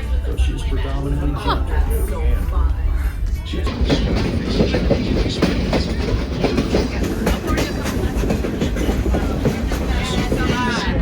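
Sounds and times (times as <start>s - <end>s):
train rumbling: 0.0s - 11.0s
wheels clattering over rail joints: 3.6s - 10.9s.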